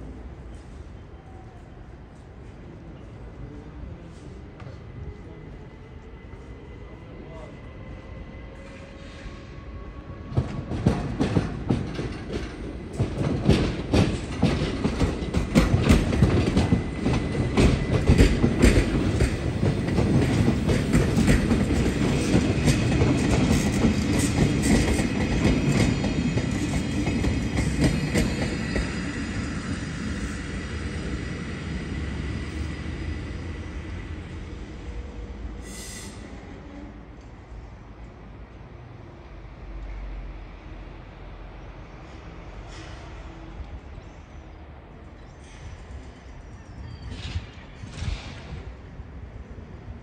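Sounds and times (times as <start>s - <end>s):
low train rumble: 0.0s - 50.0s
train wheels clacking over rail joints: 10.3s - 29.1s.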